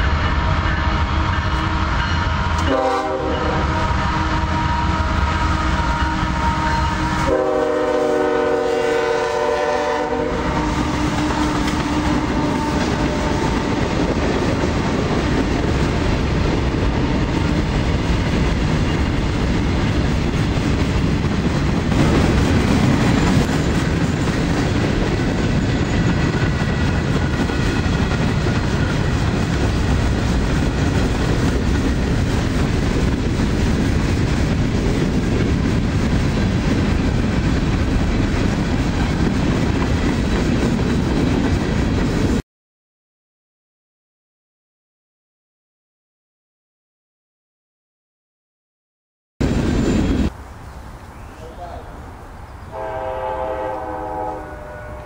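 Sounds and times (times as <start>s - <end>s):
locomotive horn blasts: 0.0s - 13.8s, 52.7s - 55.0s
train wheels rumbling and clattering: 10.2s - 42.4s.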